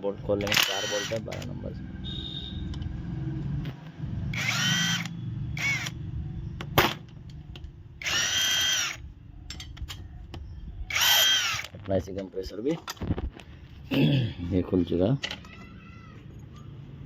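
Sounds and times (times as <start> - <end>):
power tool whining: 0.4 - 1.5, 4.3 - 6.0, 8.0 - 9.0, 10.9 - 11.8.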